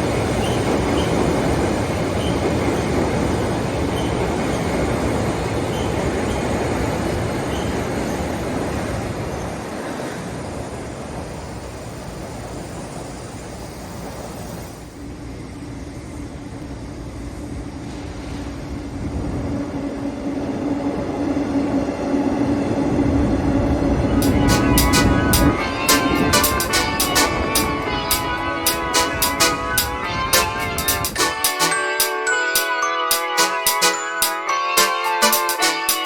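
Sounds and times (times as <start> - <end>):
train rumbling on rails: 0.0 - 31.4.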